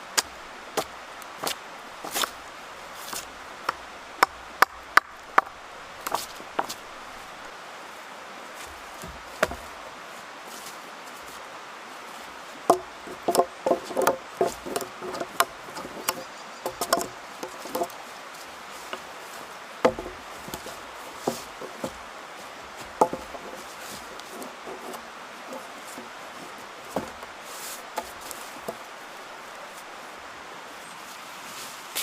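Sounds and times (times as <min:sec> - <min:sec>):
hand tool knocking wood: 0:09.0 - 0:09.7, 0:12.7 - 0:18.0, 0:19.8 - 0:22.1, 0:22.8 - 0:26.1, 0:26.9 - 0:27.3, 0:28.0 - 0:28.8.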